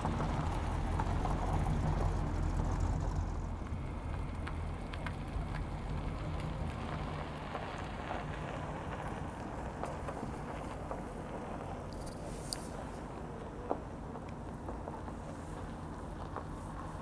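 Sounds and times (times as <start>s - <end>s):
car engine humming: 0.0s - 17.0s
outdoor noise: 0.0s - 17.0s.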